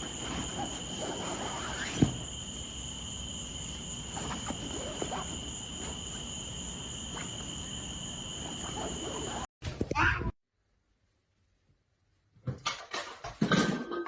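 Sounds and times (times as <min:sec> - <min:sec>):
crickets chirping: 0:00.0 - 0:09.5.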